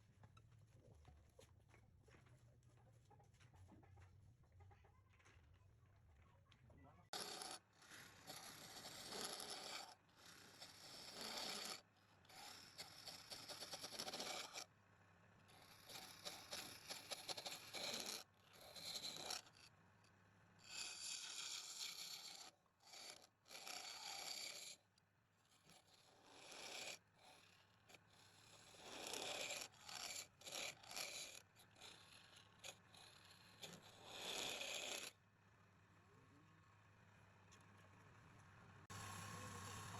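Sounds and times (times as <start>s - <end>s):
tool scraping wood on lathe: 7.1s - 14.7s, 15.5s - 19.7s, 20.7s - 24.8s, 25.7s - 35.1s.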